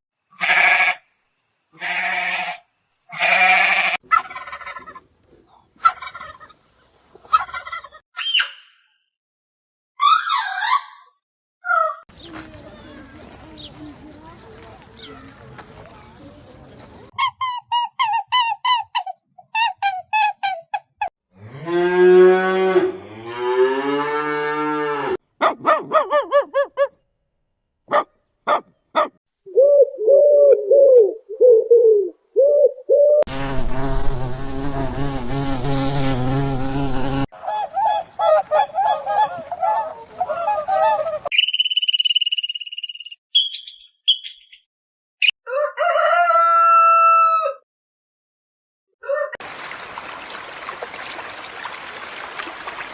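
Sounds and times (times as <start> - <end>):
rapid repeated animal calls: 27.9 - 29.2.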